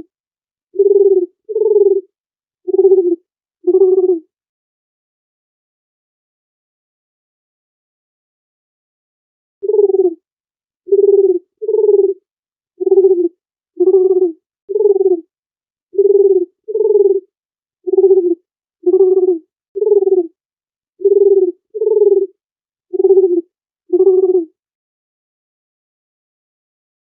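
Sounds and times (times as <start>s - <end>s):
dove cooing: 0.8s - 2.1s, 2.7s - 4.2s, 9.6s - 10.2s, 10.9s - 12.2s, 12.8s - 15.3s, 16.0s - 17.3s, 17.9s - 20.4s, 21.0s - 24.5s.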